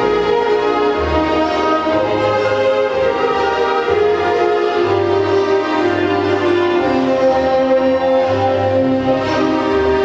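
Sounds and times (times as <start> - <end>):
orchestral string music: 0.0 - 10.0.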